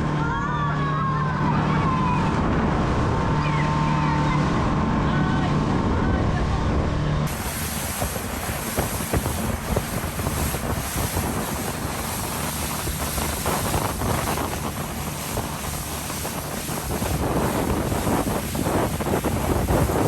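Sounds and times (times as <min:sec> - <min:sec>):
speedboat motor: 0:00.0 - 0:20.0
wind buffeting microphone: 0:00.0 - 0:20.0
rushing water: 0:07.3 - 0:20.0.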